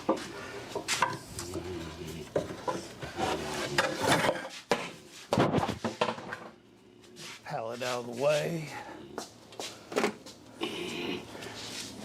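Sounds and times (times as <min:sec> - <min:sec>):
wood scraping: 0:00.0 - 0:06.4.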